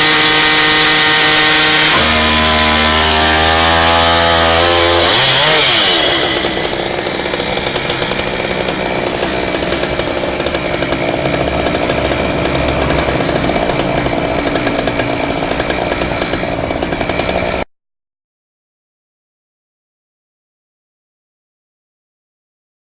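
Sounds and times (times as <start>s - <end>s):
chainsaw cutting metal pipe: 0.0s - 17.7s.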